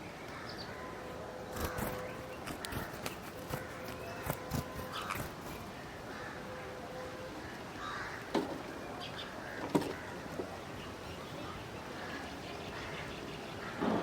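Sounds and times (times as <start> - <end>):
outdoor background noise: 0.0 - 14.0
crow cawing: 7.4 - 8.4, 9.4 - 10.3.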